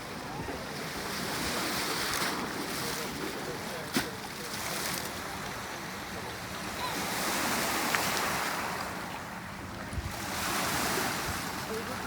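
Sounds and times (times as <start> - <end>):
water rushing past boat: 0.0 - 12.0
wind buffeting microphone: 7.4 - 11.9.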